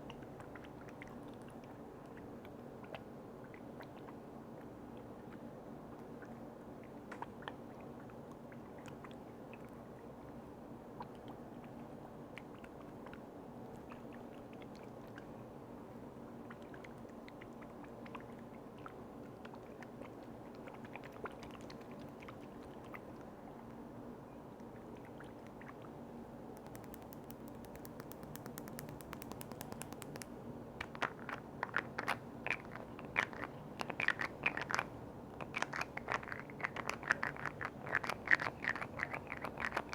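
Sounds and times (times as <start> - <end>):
crackling taps: 26.6 - 32.2
faint clicks of handled objects: 26.6 - 32.9.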